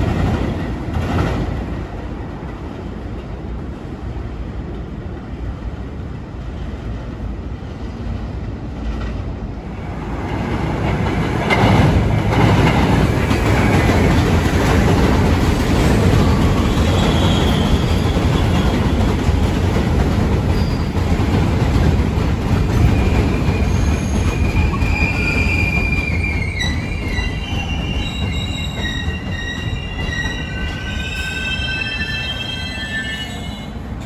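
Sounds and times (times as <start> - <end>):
train rumbling past: 0.0 - 34.0
steel wheel squeal: 16.6 - 18.8, 20.5 - 21.0, 22.8 - 33.8.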